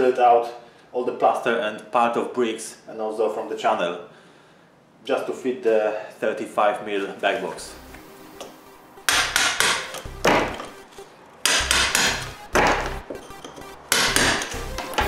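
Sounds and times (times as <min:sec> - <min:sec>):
hammer striking steel chisel: 0:09.1 - 0:15.0.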